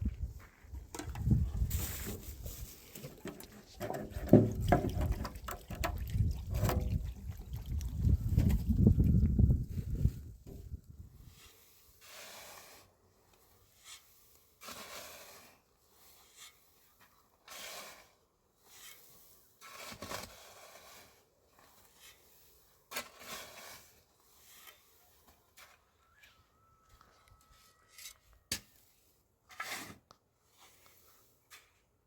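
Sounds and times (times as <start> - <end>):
hand tool scraping: 1.0 - 5.9, 11.2 - 32.0.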